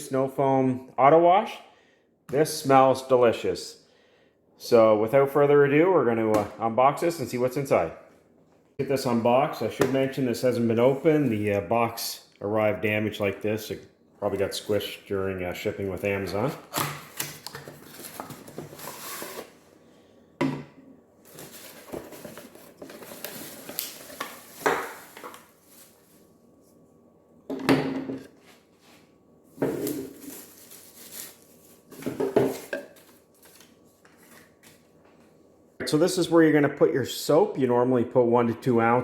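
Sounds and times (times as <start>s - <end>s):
packaging rustling: 17.0s - 19.6s, 21.2s - 26.2s, 29.8s - 34.8s.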